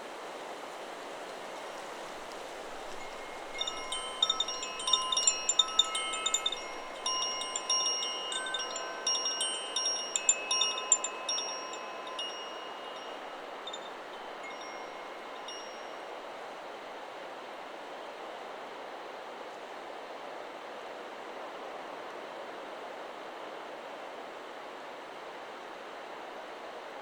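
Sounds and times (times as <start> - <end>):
wind noise: 1.8 - 15.9
wind chime ringing: 2.6 - 16.2.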